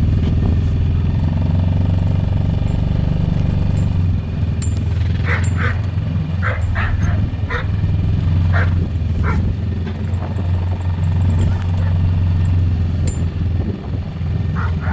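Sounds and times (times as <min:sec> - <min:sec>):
quad bike engine running: 0:00.0 - 0:14.9
dog barking: 0:05.2 - 0:10.4, 0:11.3 - 0:12.1, 0:14.4 - 0:14.9.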